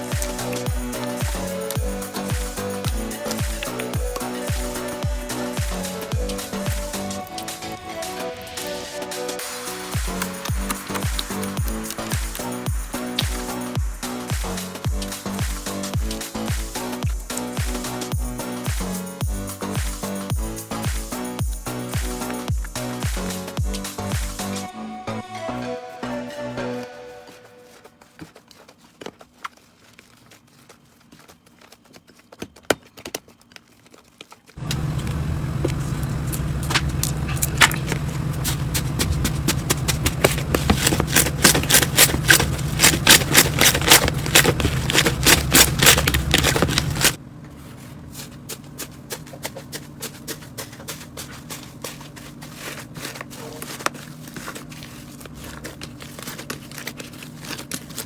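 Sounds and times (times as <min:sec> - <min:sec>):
low hum: 0:34.6 - 0:47.2.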